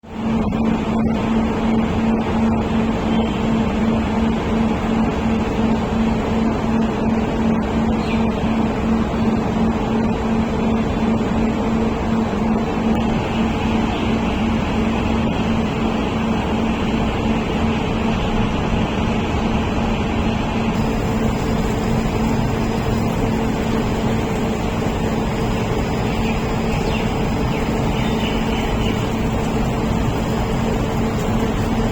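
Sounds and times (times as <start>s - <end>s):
heavy machinery engine pulsing hum: 0.0s - 31.9s
heavy machinery droning: 20.7s - 31.9s.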